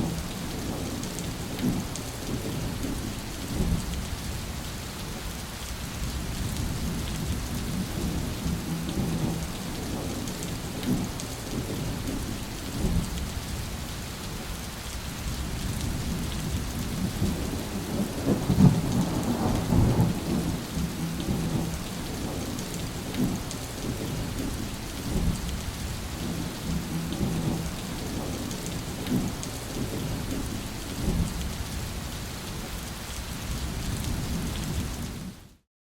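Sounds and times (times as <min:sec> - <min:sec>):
steady rain falling: 0:00.0 - 0:35.6
rolling thunder: 0:15.3 - 0:31.8.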